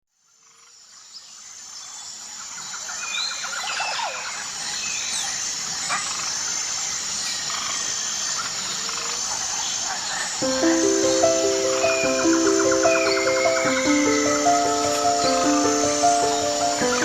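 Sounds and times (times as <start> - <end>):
bird chirps: 10.4 - 17.0
high insect trill: 10.4 - 17.0
steady hiss: 10.4 - 17.0.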